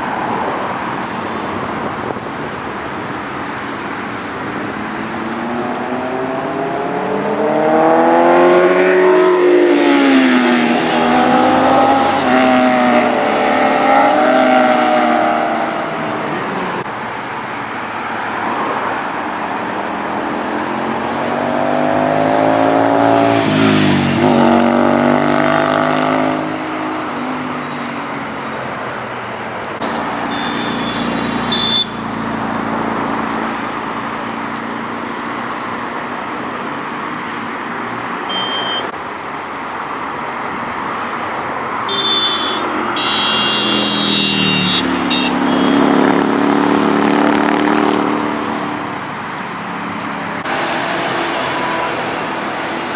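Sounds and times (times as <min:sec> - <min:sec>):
traffic noise: 0:00.0 - 0:52.9
motorcycles revving past: 0:04.5 - 0:16.9, 0:18.5 - 0:28.1, 0:29.8 - 0:36.2, 0:42.0 - 0:52.9.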